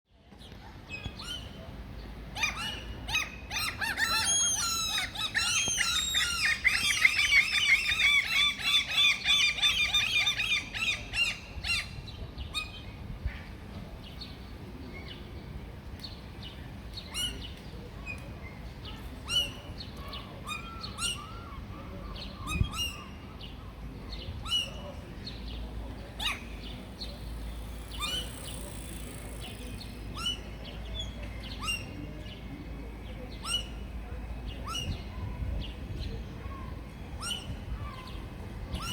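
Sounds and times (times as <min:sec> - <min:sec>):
gulls calling: 0:02.4 - 0:12.0, 0:18.9 - 0:32.2.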